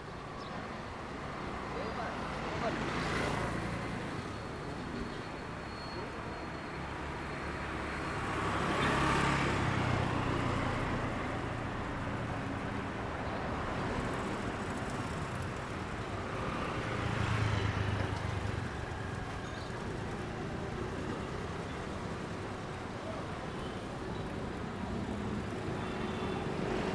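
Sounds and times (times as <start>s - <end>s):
background traffic noise: 0.0s - 26.9s
vehicles passing close by: 6.9s - 26.9s.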